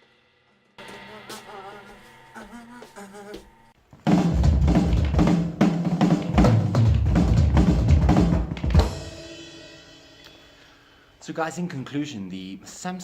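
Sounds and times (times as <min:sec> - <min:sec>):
cymbals ringing: 0:00.0 - 0:03.8, 0:08.9 - 0:11.1
bass drum and snare hits: 0:04.1 - 0:09.3.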